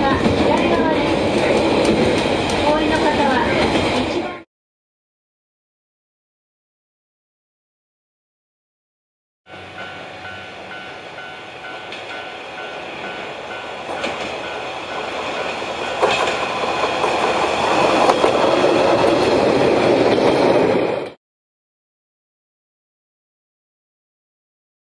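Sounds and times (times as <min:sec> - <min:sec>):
train wheels clacking over joints: 0:13.8 - 0:20.7.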